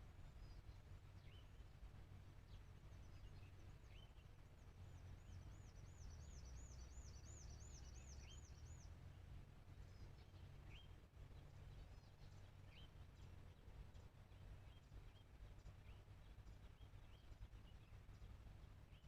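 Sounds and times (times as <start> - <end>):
bird chirps: 2.5 - 8.9.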